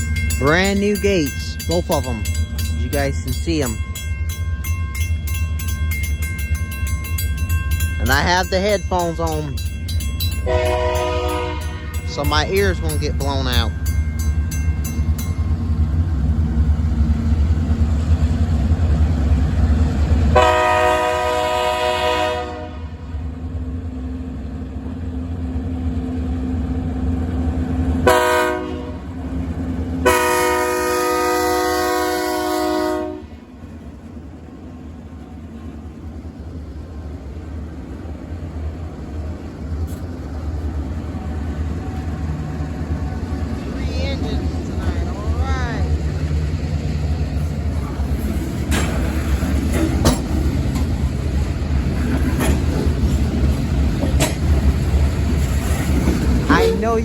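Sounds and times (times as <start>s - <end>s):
diesel locomotive rumbling: 0.0s - 57.0s
train air horn blasts: 10.4s - 12.0s, 20.4s - 23.0s, 28.0s - 29.1s, 30.0s - 33.4s.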